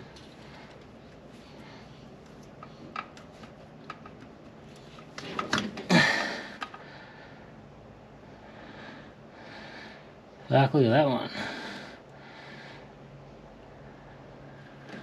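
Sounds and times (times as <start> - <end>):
hands handling wires and tools: 2.1 - 5.9.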